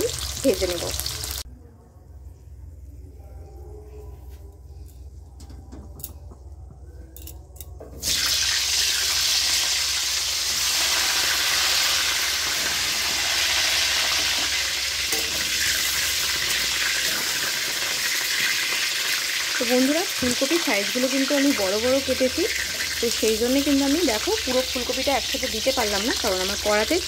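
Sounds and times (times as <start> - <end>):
vegetables sizzling in hot oil: 0.0 - 1.4, 8.0 - 27.0.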